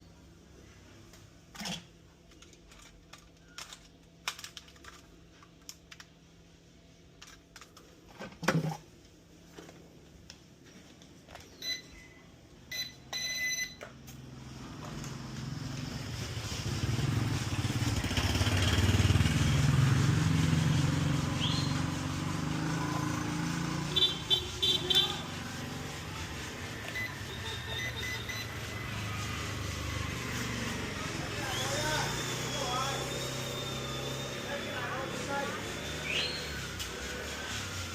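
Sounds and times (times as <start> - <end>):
short electronic beeps: 11.6 - 12.1, 12.7 - 13.8, 26.8 - 29.0
rc aircraft motors whirring: 25.8 - 37.9.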